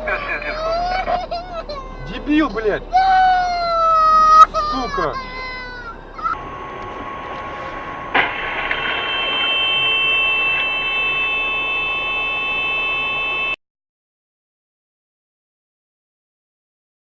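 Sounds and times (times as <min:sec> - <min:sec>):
road and engine noise: 0:00.0 - 0:13.6
faint high-pitched tone: 0:04.4 - 0:13.6
sudden loud bang: 0:06.4 - 0:11.5.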